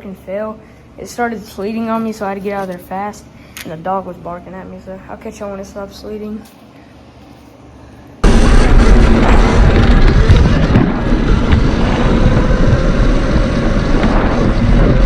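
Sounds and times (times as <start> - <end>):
wind buffeting microphone: 8.2 - 15.0
dirt bike tyres and drive: 8.3 - 15.0.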